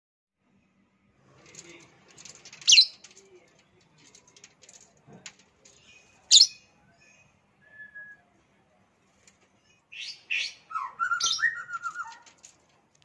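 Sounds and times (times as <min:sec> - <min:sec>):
small birds chirping: 0:01.5 - 0:07.5, 0:09.1 - 0:12.6.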